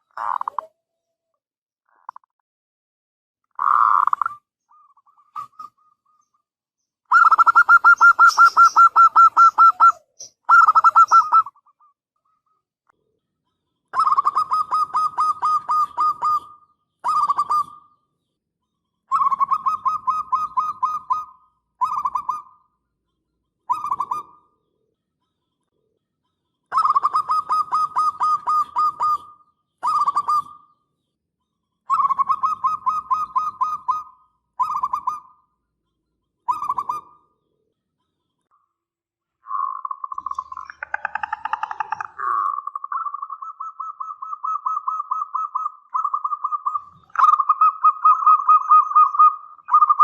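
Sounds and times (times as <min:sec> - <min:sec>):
dove cooing: 0:07.1 - 0:11.8, 0:14.0 - 0:17.9, 0:19.1 - 0:22.5, 0:26.7 - 0:30.7, 0:31.9 - 0:35.2, 0:36.5 - 0:37.2, 0:39.5 - 0:50.0.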